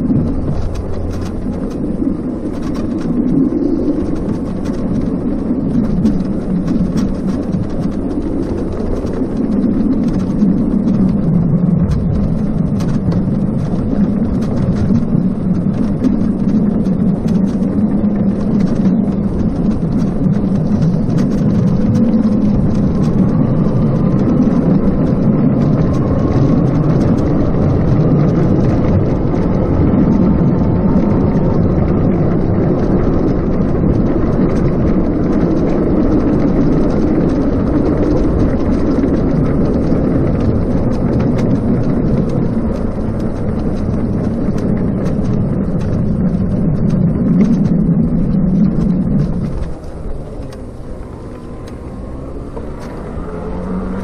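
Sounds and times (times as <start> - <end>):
bicycle tyre noise: 0.0 - 54.0
faint whine: 0.0 - 54.0
wind buffeting microphone: 0.0 - 54.0.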